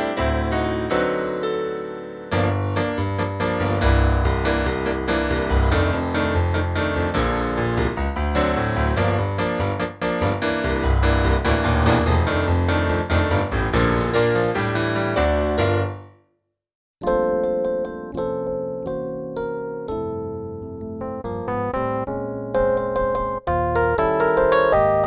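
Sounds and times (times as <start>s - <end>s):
digital piano playing quick notes: 17.0s - 25.0s.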